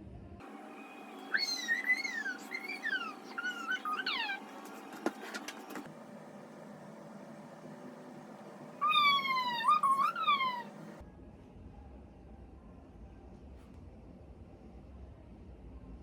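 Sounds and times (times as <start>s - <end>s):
dog whining: 1.2s - 5.6s, 8.7s - 11.0s.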